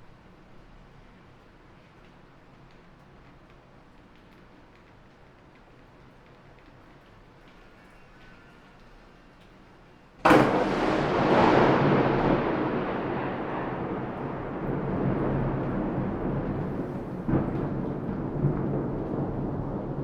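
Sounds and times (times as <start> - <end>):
thunder crack and rumble: 10.2 - 20.0
storm roar: 10.3 - 20.0.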